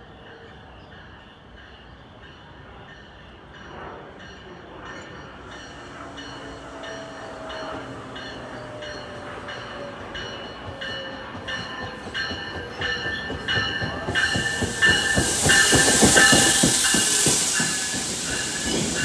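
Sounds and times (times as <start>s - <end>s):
train bell ringing: 0.0s - 19.0s
train pulling into station: 0.0s - 19.0s
train wheel clatter: 3.7s - 19.0s
loud air hiss: 14.1s - 19.0s.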